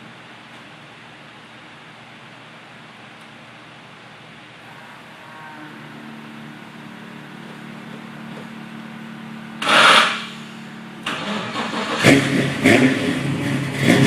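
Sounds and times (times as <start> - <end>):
car engine idling and revving: 5.8 - 14.0.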